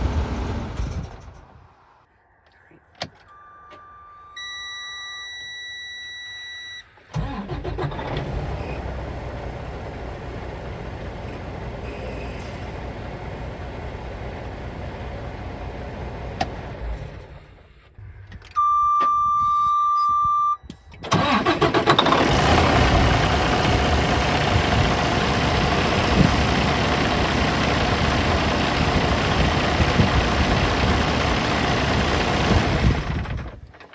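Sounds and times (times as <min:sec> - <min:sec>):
diesel engine cranking and idling: 0:00.0 - 0:01.7, 0:07.1 - 0:18.6, 0:20.9 - 0:33.9
warning beep: 0:03.3 - 0:06.9, 0:18.5 - 0:21.1.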